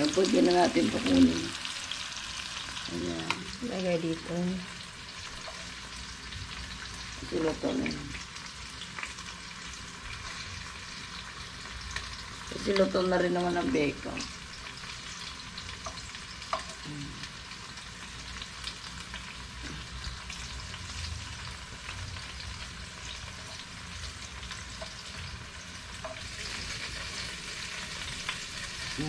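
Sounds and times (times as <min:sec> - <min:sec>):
food sizzling in a frying pan: 0:00.0 - 0:29.0.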